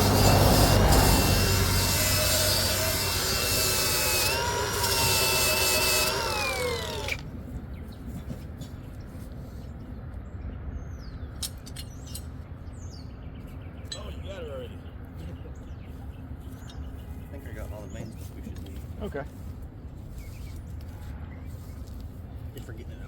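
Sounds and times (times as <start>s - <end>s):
wire brush grinder whining: 0.0s - 7.3s.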